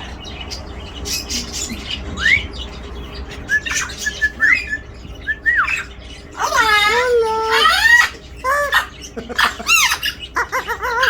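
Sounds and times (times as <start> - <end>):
parrot whistling and squawking: 3.3 - 11.0
parrot chirps: 5.4 - 11.0.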